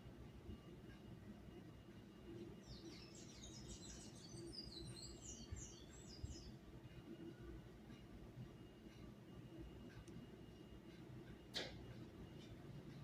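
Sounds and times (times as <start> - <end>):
small bird chirping: 2.4 - 6.6.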